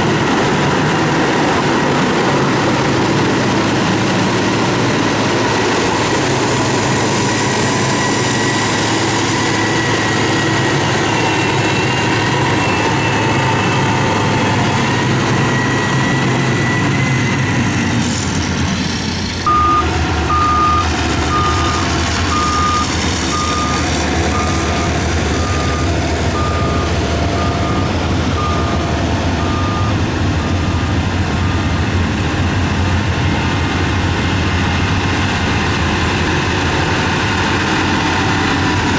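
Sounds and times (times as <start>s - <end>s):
heavy machinery engine running: 0.0s - 38.9s
reversing alarm beeping: 5.7s - 17.7s, 19.4s - 31.8s.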